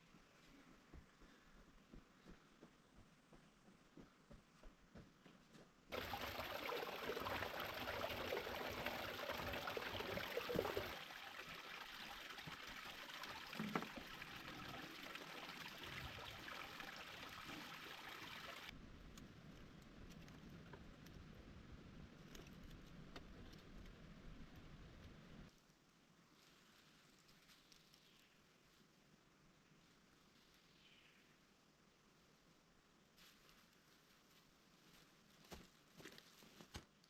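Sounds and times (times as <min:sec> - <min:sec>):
stream water rushing and trickling: 0:05.9 - 0:18.8.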